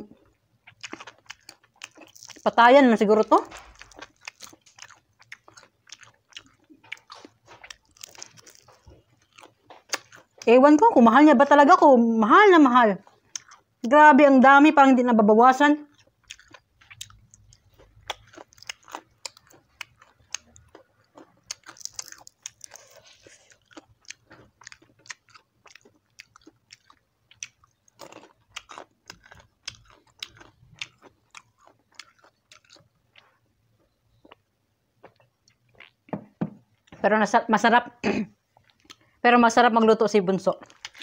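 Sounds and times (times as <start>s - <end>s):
crunchy food chewing: 0.1s - 2.6s, 3.4s - 10.5s, 13.0s - 13.8s, 15.8s - 36.1s, 40.5s - 41.0s.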